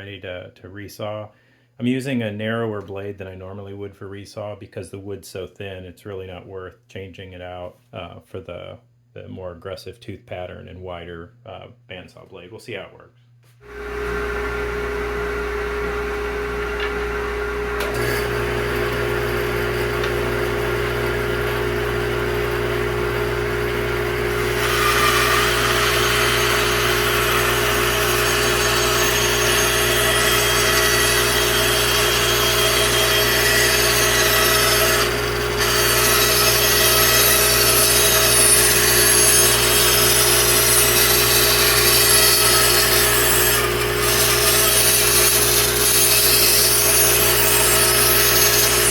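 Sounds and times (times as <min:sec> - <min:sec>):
bandsaw motor hum: 0:13.6 - 0:48.9
bandsaw blade cutting wood: 0:16.5 - 0:48.9.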